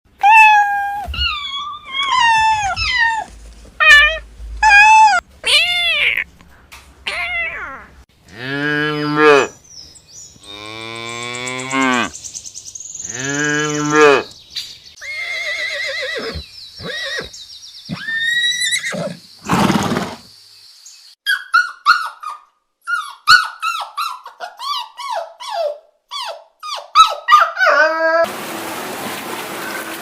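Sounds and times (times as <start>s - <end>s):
young farm animals calling: 0.5s - 6.3s, 7.1s - 9.5s.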